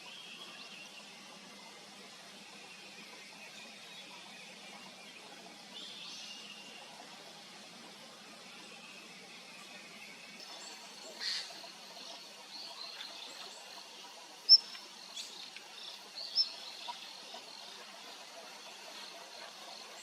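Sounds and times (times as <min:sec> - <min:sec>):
faint outdoor background noise: 0:00.0 - 0:20.0
birds chirping: 0:10.0 - 0:20.0.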